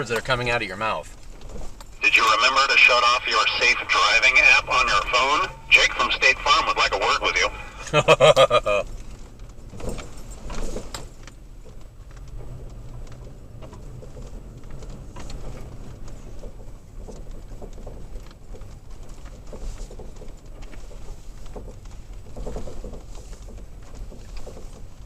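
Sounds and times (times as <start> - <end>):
small clicks and rattles: 0.0 - 2.0, 8.9 - 25.0
engine and tyres rumbling: 0.0 - 25.0.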